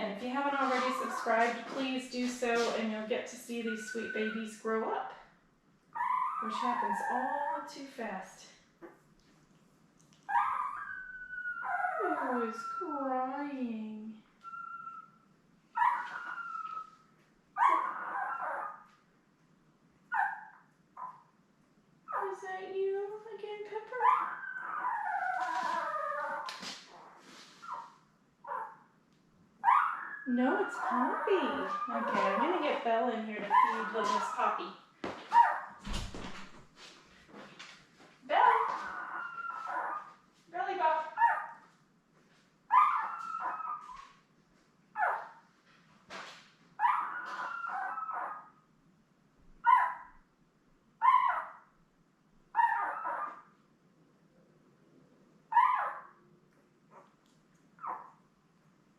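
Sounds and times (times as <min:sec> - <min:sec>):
puppy crying: 0:05.9 - 0:07.6, 0:10.3 - 0:12.9, 0:15.8 - 0:17.0, 0:17.6 - 0:18.9, 0:24.0 - 0:28.8, 0:29.6 - 0:32.8, 0:33.4 - 0:34.6, 0:35.3 - 0:35.8, 0:38.4 - 0:40.1, 0:42.7 - 0:44.1, 0:45.0 - 0:45.4, 0:46.8 - 0:48.6, 0:49.6 - 0:50.1, 0:51.0 - 0:51.7, 0:52.6 - 0:53.5, 0:55.5 - 0:56.2, 0:57.8 - 0:58.2.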